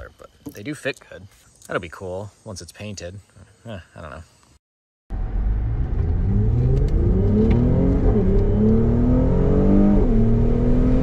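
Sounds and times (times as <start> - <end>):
car engine accelerating hard: 5.1 - 11.0.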